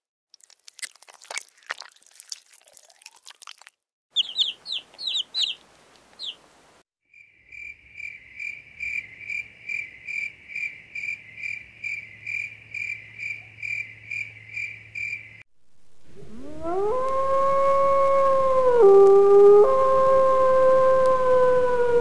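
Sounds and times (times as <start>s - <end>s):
caterpillars chewing leaf: 0.3s - 2.5s, 4.2s - 6.4s
high falling chirps: 4.2s - 5.6s, 6.2s - 6.4s.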